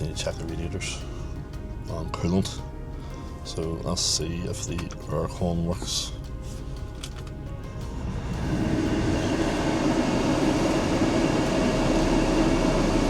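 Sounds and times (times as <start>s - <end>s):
car engine idling: 6.5s - 13.0s
blower fan air rushing: 7.6s - 13.0s.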